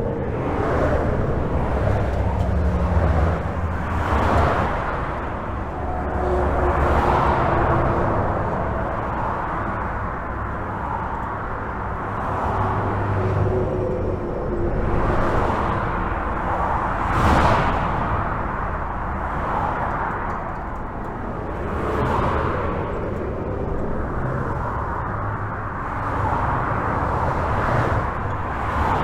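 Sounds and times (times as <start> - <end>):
highway traffic rumble: 0.0 - 29.0.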